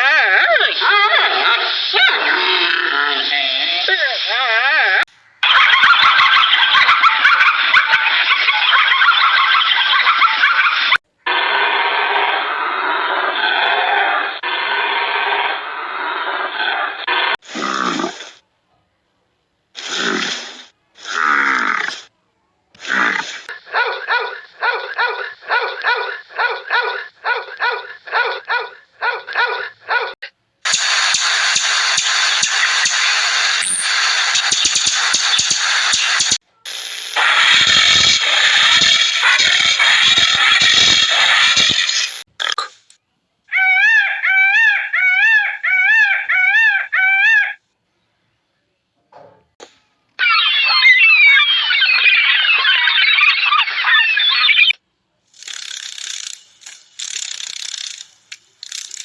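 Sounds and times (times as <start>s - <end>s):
harsh animal cries: 43.5s - 47.6s, 50.2s - 54.7s.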